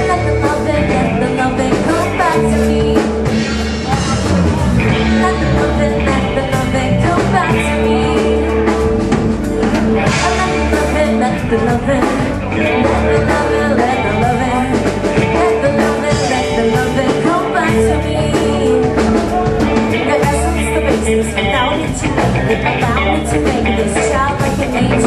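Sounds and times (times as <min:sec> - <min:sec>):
rock band playing: 0:00.0 - 0:25.0
person rapping: 0:19.9 - 0:25.0.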